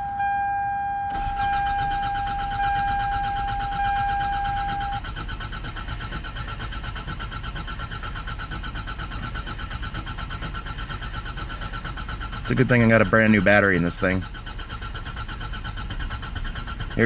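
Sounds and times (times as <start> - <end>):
high warning tone: 0.0 - 5.0
starter cranking engine: 1.1 - 17.0.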